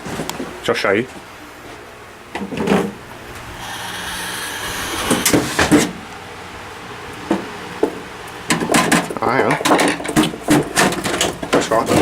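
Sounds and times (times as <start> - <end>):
computer case sliding scrape: 3.6 - 5.9.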